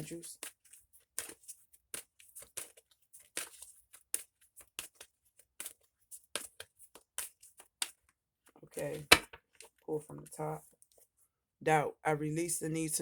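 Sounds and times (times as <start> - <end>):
cards being shuffled: 0.4 - 8.0.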